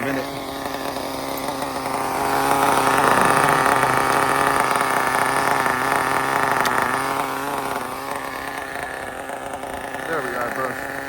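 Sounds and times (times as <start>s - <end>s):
rc car engine buzzing: 0.0s - 11.0s.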